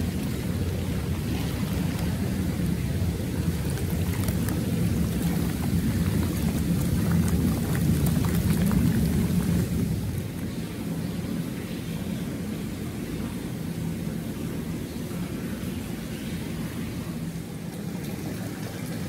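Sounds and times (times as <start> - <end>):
water splashing: 0.0 - 10.7
jet bath bubbling water: 0.0 - 19.0.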